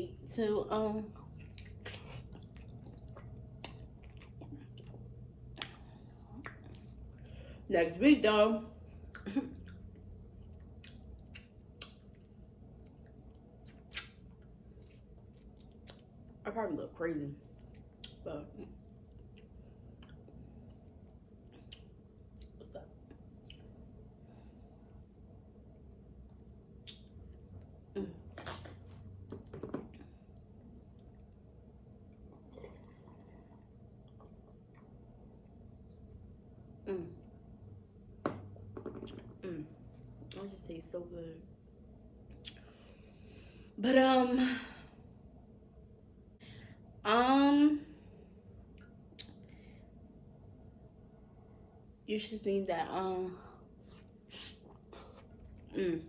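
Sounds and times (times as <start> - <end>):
wet chewing: 1.4 - 7.0, 9.1 - 16.2.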